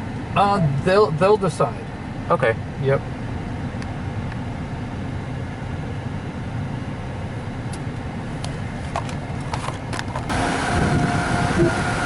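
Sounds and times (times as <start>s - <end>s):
truck idling rumble: 3.0s - 12.0s.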